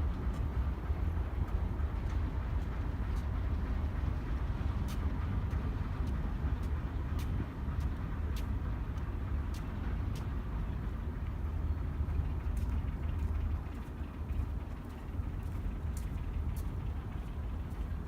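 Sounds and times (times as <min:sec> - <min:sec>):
diesel locomotive rumbling: 0:00.0 - 0:18.0.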